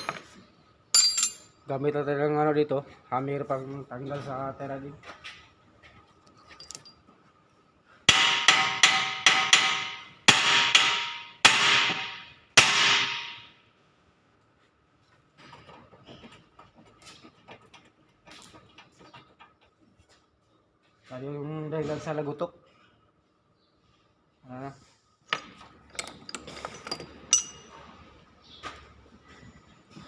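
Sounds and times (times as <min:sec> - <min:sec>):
tool clinks: 0:00.0 - 0:00.3, 0:01.0 - 0:01.6, 0:06.4 - 0:07.2, 0:25.3 - 0:27.9
hammer striking steel: 0:08.1 - 0:13.5.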